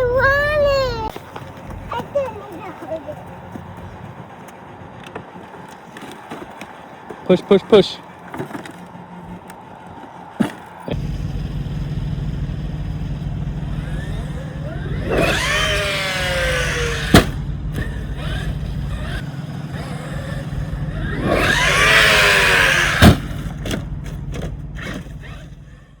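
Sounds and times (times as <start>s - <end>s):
toy truck electric motor whining: 5.0s - 26.0s
toy truck smacking ground: 8.2s - 10.8s, 21.2s - 25.4s
steady low rumble: 10.9s - 21.3s.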